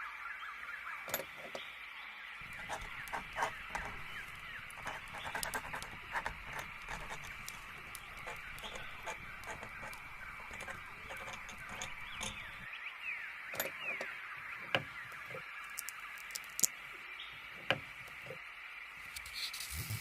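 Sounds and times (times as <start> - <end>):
steady high background noise: 0.0 - 20.0
birds chirping: 0.5 - 19.6
sharp clicks: 2.4 - 12.7.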